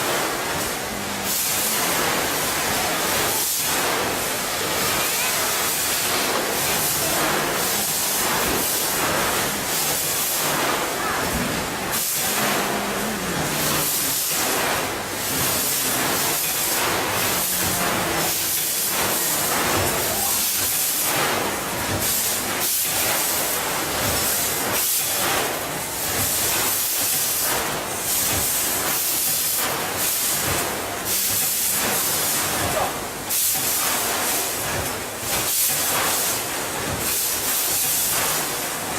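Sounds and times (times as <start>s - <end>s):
packaging machine hissing: 0.0s - 38.9s
machine clatter of small knocks: 33.4s - 38.9s.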